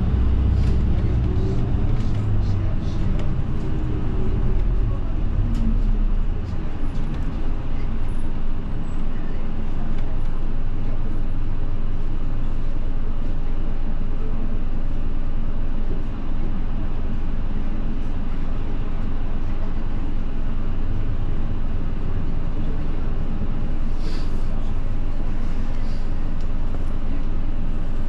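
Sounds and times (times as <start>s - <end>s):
bus engine and road rumble: 0.0s - 28.0s.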